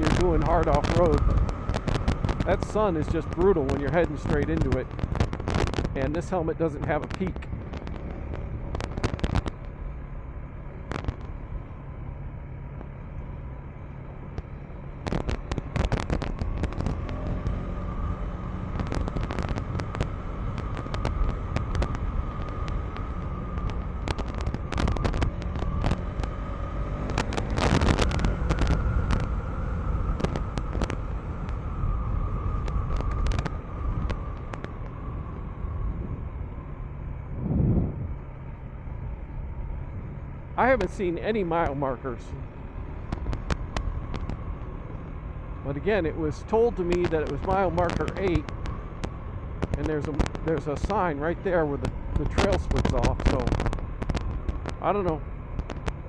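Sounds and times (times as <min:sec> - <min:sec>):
sharp clicks and knocks: 0:00.0 - 0:06.0, 0:07.0 - 0:09.8, 0:14.3 - 0:17.6, 0:18.7 - 0:29.3, 0:30.0 - 0:31.7, 0:32.4 - 0:35.0, 0:43.0 - 0:45.0, 0:46.8 - 0:51.0, 0:51.8 - 0:56.0
motorcycle engine running: 0:00.0 - 0:56.0.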